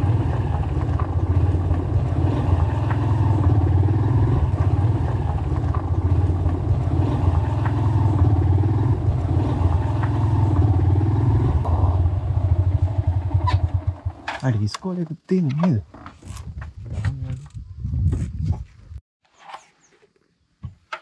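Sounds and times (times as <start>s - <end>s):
motorcycle engine running: 0.0s - 14.7s.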